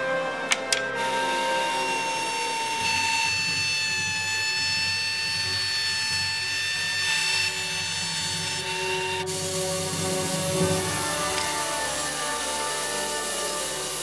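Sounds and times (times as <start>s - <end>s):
table saw running: 0.4s - 14.0s
sharp click: 0.5s - 0.9s.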